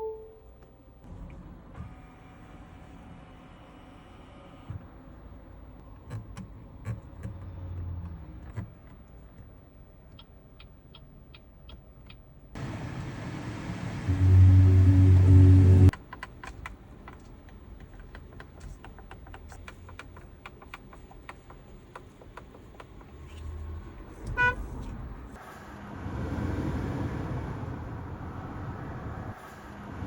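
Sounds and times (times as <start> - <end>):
short electronic beep: 0.0 - 0.5
low steady rumble: 12.6 - 15.9
car horn blast: 14.1 - 15.9, 24.4 - 24.6.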